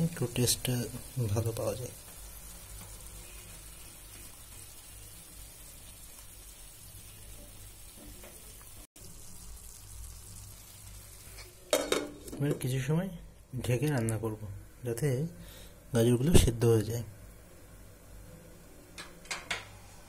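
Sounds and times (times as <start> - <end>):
food sizzling in a pan: 0.0 - 12.9.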